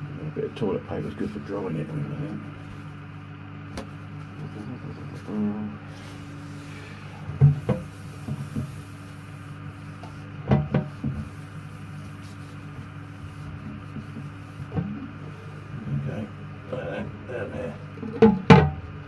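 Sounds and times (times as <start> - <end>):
steady low hum: 0.0 - 19.0
knocks and rubs of parts: 5.9 - 17.0, 18.0 - 18.8.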